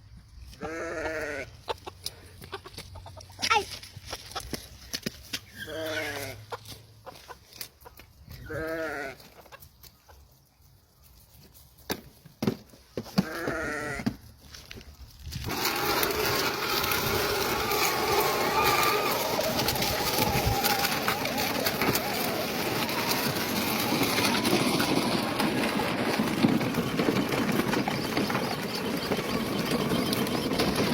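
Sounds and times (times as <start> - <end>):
farmyard sounds: 0.0 - 30.9
sheep bleating: 0.6 - 1.5, 8.5 - 9.3, 13.2 - 14.1.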